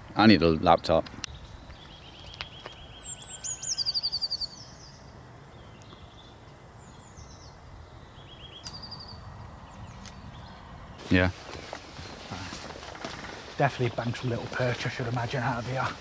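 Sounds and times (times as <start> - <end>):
songbird trilling: 1.3 - 10.7.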